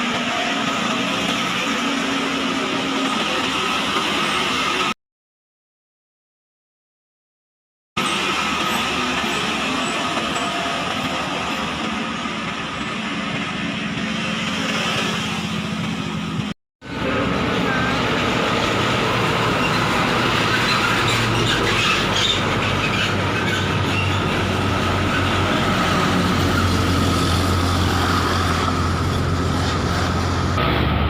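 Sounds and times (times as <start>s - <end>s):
heavy vehicle engine drone: 8.0s - 31.0s.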